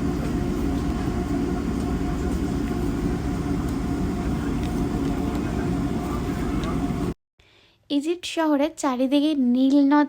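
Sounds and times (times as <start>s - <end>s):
train rumble inside carriage: 0.0s - 7.1s.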